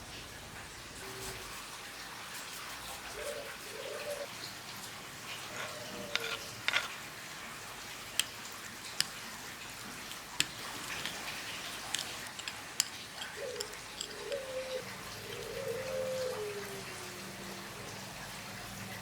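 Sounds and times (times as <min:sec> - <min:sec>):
steady rain: 0:14.7 - 0:19.0.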